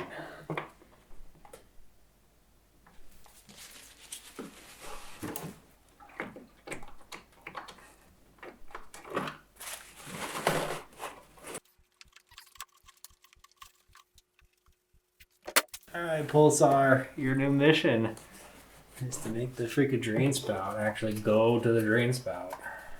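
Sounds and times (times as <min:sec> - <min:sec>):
oil dripping into pan: 0:12.0 - 0:15.0.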